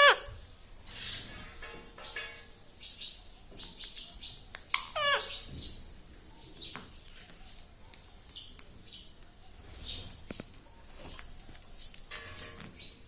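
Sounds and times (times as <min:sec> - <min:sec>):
parrot chirping: 0:00.0 - 0:01.4, 0:03.8 - 0:05.8.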